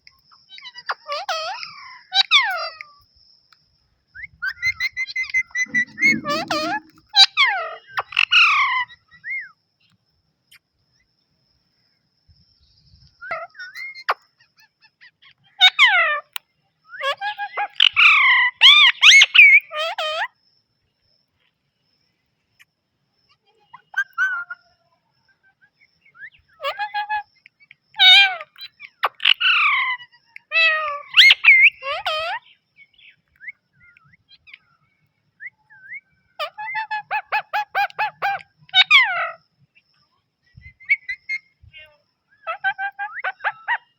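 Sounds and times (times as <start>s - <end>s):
parrot calls and whistles: 5.5s - 7.0s
parrot chirps: 28.0s - 32.4s, 42.4s - 43.9s.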